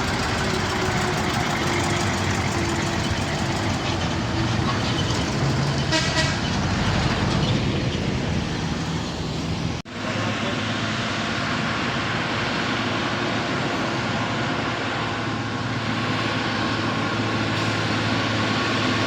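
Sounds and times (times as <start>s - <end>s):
truck diesel engines running: 0.0s - 19.0s
short horn tone: 5.9s - 6.4s.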